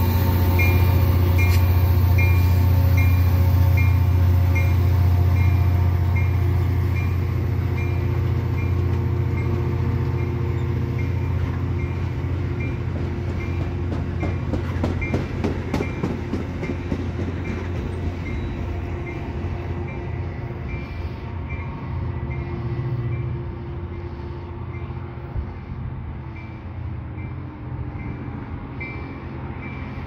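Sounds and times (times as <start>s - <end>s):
train wheels clacking on rail joints: 0.0s - 7.2s, 12.6s - 19.2s
diesel locomotive engine drone: 0.0s - 30.0s.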